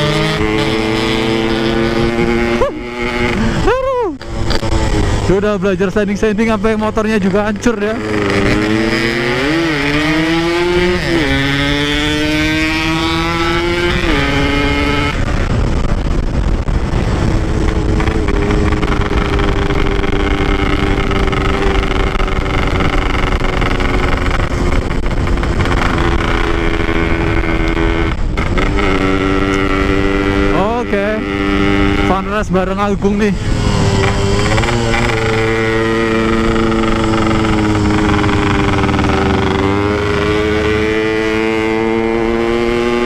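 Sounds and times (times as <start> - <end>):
motorcycle engine: 0.0 - 43.0.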